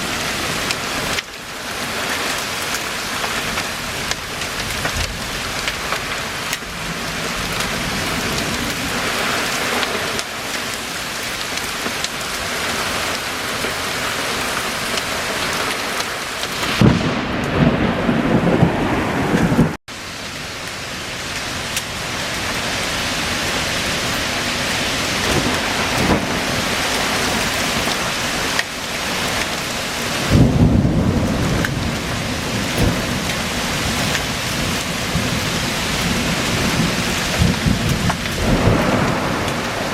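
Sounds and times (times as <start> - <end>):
heavy rain pouring: 0.0 - 39.9
loud thunder rolls: 16.6 - 19.8, 25.2 - 27.2, 30.2 - 39.9.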